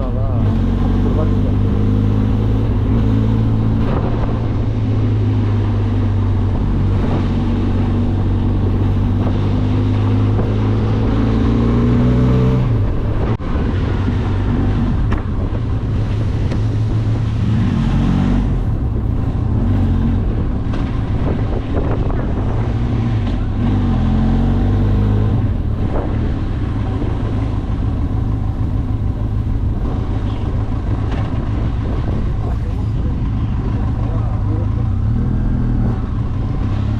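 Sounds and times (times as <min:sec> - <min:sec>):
motorcycle engine running: 0:00.0 - 0:24.1.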